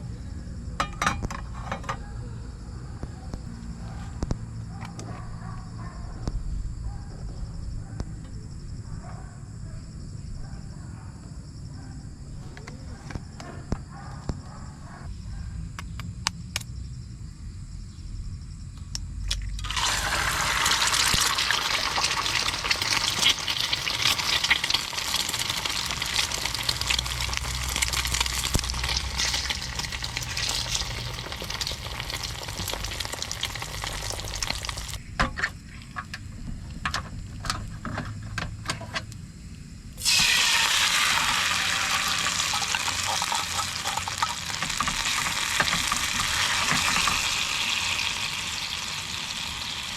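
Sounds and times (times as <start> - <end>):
food sizzling in hot oil: 19.6 - 35.0, 40.0 - 49.9.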